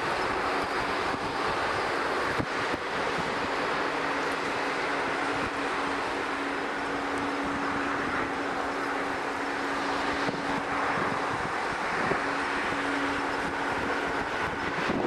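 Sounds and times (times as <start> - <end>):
low hum: 0.0 - 15.0
wind on microphone: 0.0 - 15.0.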